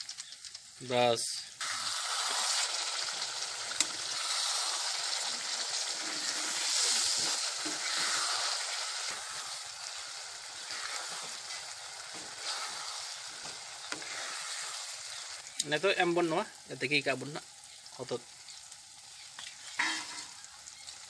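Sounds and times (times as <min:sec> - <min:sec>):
paste sizzling in hot oil: 0:00.0 - 0:21.0
spatula stirring: 0:03.8 - 0:15.4.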